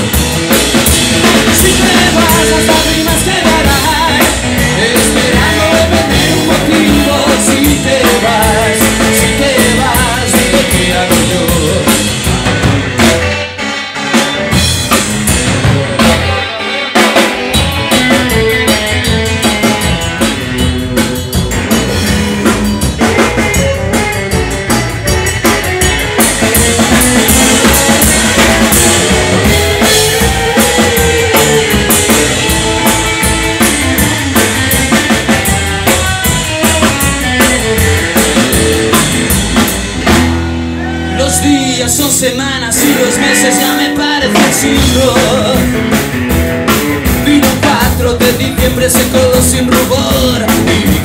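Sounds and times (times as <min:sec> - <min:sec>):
drum kit beat: 0:00.0 - 0:51.0
guitar melody: 0:00.0 - 0:51.0
rock band playing: 0:00.0 - 0:51.0.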